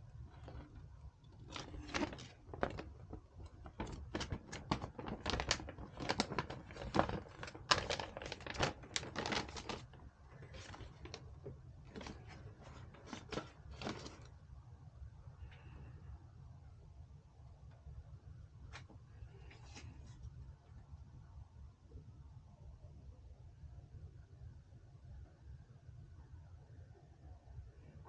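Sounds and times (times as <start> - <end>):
low steady hum: 0.0 - 28.0
small clicks taps and rustles: 0.2 - 14.3.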